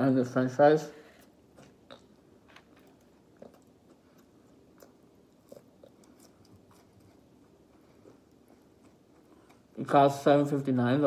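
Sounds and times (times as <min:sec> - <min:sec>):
soft chewing mouth clicks: 0:01.2 - 0:09.8.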